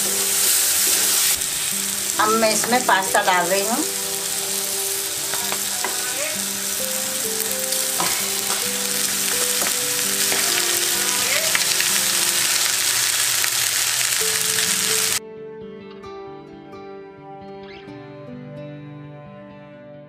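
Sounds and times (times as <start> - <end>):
vegetables frying hiss: 0.0 - 15.2.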